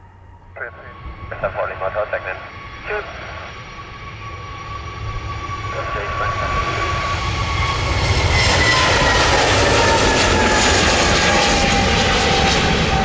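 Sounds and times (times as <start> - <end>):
jet airliner engines whining: 0.0 - 13.0.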